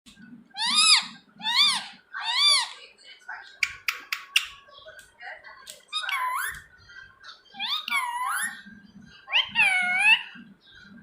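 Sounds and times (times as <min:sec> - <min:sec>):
parrot calling: 0:00.5 - 0:02.8, 0:05.9 - 0:06.7, 0:07.5 - 0:08.6, 0:09.3 - 0:10.4.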